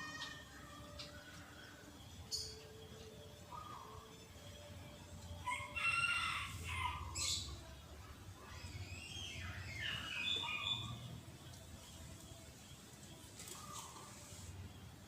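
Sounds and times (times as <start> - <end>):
rooster crowing: 5.4 - 7.4.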